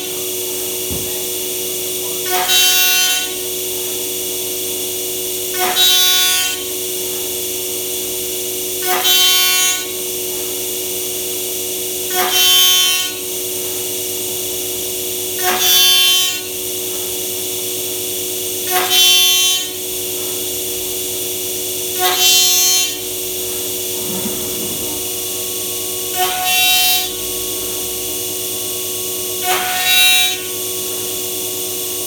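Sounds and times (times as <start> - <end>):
machine spindle whine: 23.5 - 25.2.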